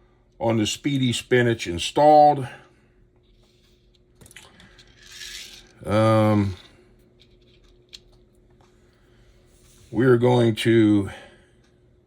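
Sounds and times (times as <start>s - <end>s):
tiny metal parts clinking: 4.2s - 8.1s.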